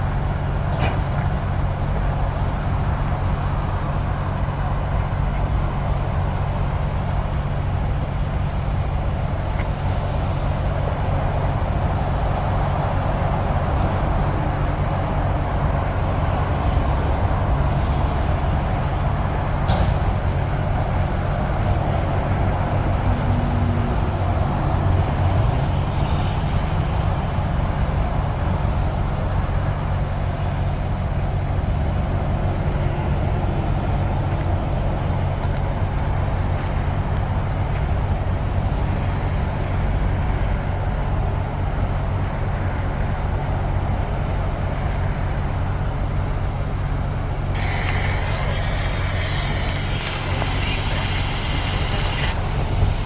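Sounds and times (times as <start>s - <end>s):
heavy traffic rumble: 0.0s - 53.0s
low hum: 46.8s - 53.0s.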